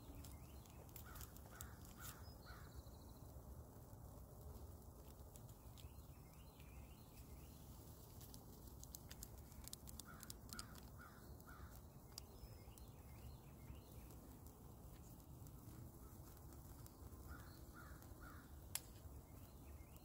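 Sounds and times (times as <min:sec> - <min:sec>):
bird calling: 0:17.2 - 0:18.6.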